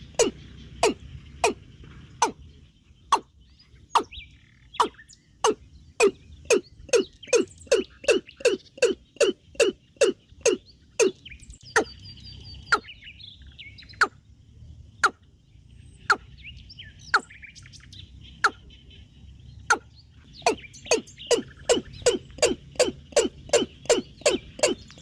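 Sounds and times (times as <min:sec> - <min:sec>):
sharp descending bird calls: 0:00.0 - 0:14.2
soft twittering bird chirps: 0:00.0 - 0:25.0.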